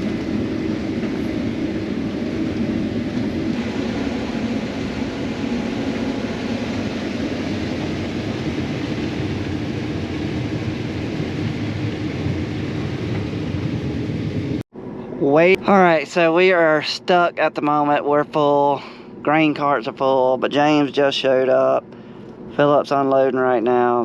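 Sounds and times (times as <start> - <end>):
combine harvester droning: 0.0 - 24.0.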